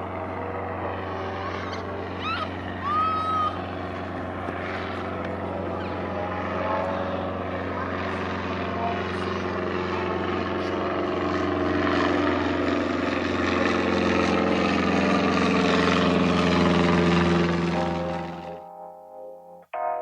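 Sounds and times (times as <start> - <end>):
aircraft engine droning: 0.0 - 18.8
guitar music: 17.6 - 20.0.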